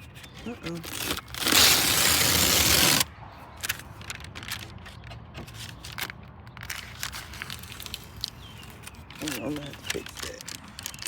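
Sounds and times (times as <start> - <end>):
faint clicks and crackles: 3.6 - 11.0.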